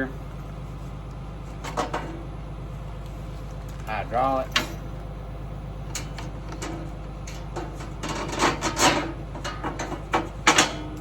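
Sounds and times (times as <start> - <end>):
low engine hum: 0.0 - 11.0
metal hose couplers clattering: 3.7 - 4.9, 5.9 - 11.0.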